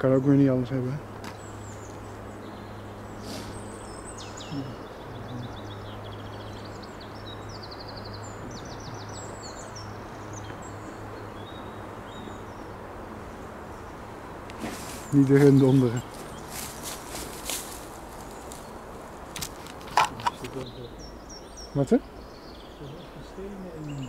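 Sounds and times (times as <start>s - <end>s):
background hiss: 0.0s - 24.0s
songbirds trilling: 0.0s - 24.0s.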